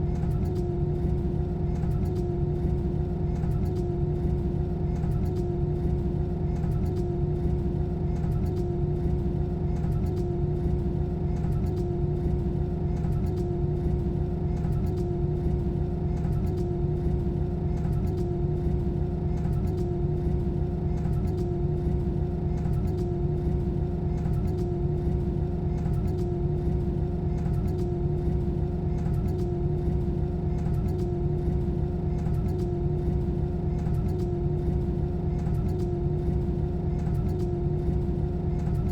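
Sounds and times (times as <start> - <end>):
jet engine drone in cabin: 11.7 - 38.9.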